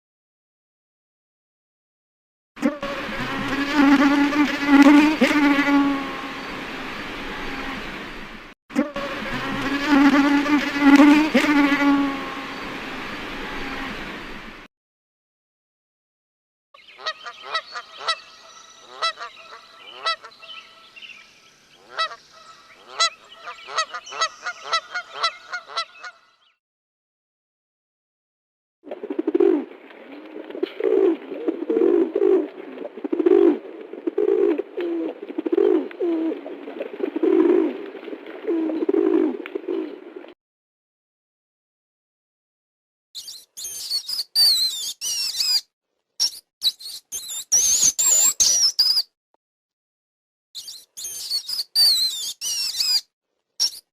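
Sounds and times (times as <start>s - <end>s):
geese honking: 18.9s - 20.4s, 21.9s - 26.2s
high-pitched animal squeaks: 43.2s - 45.6s, 46.2s - 49.1s, 50.6s - 53.0s, 53.6s - 53.9s.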